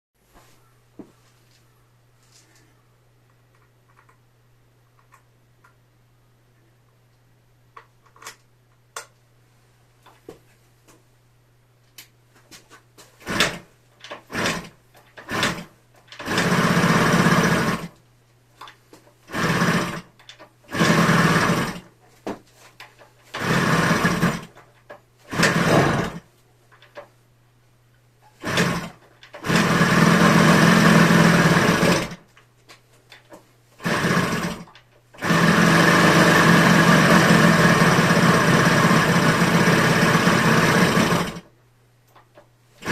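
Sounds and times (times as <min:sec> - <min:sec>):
two-stroke engine starting and dying: 0:13.2 - 0:13.6, 0:14.3 - 0:17.9, 0:19.3 - 0:20.1, 0:20.7 - 0:21.9, 0:23.4 - 0:24.6, 0:25.3 - 0:26.2, 0:28.4 - 0:32.2, 0:33.8 - 0:41.5
rattly engine running: 0:16.2 - 0:17.9, 0:20.7 - 0:21.8, 0:25.3 - 0:26.2, 0:28.4 - 0:32.2, 0:35.2 - 0:41.4.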